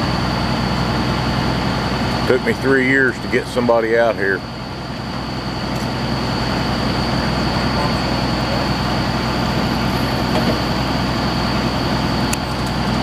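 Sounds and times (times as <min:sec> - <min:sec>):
drilling rig engine running: 0:00.0 - 0:13.0
thin high whine: 0:00.0 - 0:13.0.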